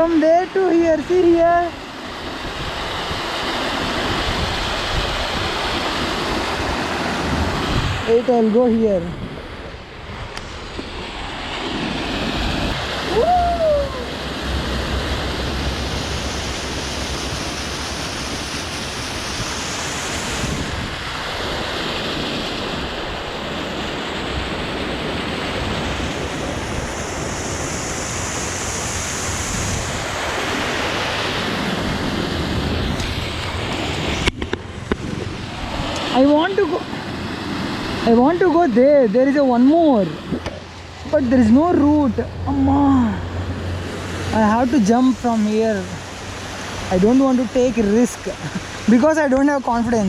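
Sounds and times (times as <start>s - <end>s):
wind buffeting microphone: 0.0s - 50.0s
waterfall rushing: 11.3s - 50.0s.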